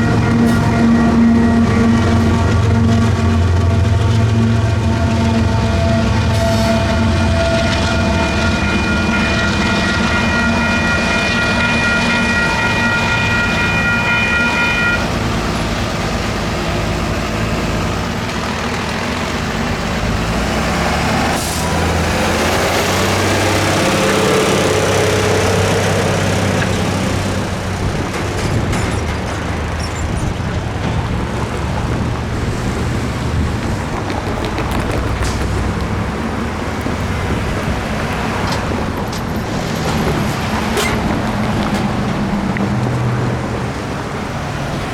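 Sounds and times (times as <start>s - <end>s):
train wheels rumbling: 0.0s - 44.9s.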